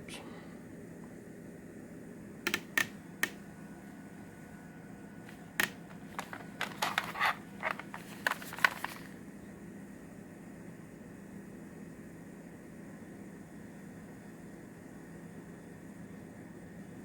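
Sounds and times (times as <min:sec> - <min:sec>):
plastic cassette cases clattering: 0:05.3 - 0:09.2.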